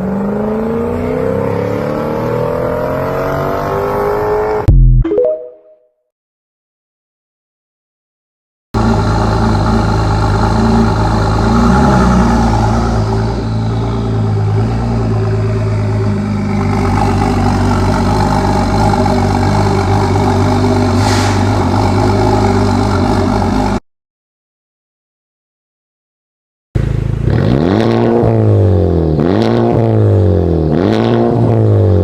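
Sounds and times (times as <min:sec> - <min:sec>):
car engine running near idle: 0:08.8 - 0:11.5
brief hiss: 0:21.0 - 0:21.6.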